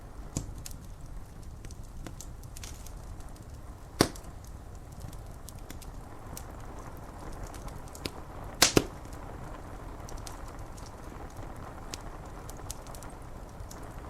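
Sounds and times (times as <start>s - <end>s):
rain rushing: 0.0s - 14.0s
wood fire crackling: 0.0s - 14.0s
loud double pop: 4.0s - 4.3s, 8.6s - 9.0s.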